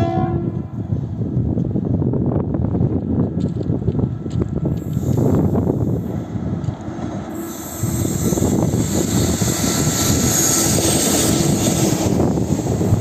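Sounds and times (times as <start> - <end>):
train rushing roar: 0.0 - 1.4, 4.1 - 13.0
faint locomotive hum: 0.0 - 13.0.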